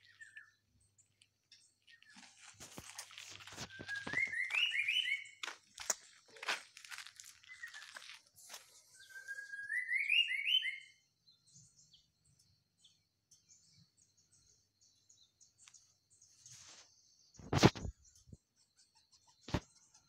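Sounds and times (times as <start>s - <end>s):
faint high chirps: 0.0s - 5.4s
bird whistling rising notes: 3.6s - 5.4s, 9.0s - 11.0s.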